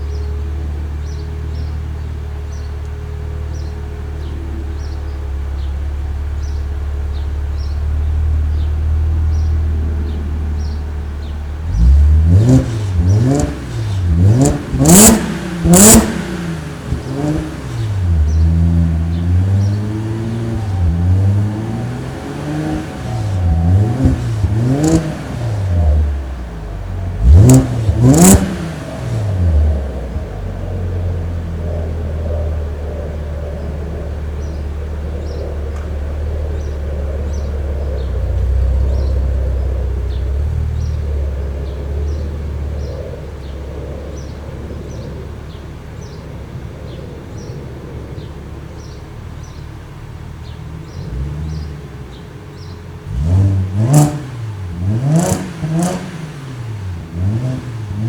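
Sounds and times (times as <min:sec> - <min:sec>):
car engine idling: 0:00.0 - 0:58.0
car engine revving: 0:00.0 - 0:58.0.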